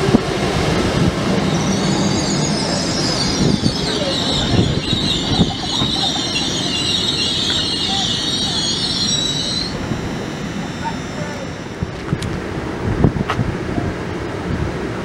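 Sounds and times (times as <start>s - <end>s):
train clunks: 0.0s - 12.5s
high-pitched wheel squeal: 1.3s - 12.3s.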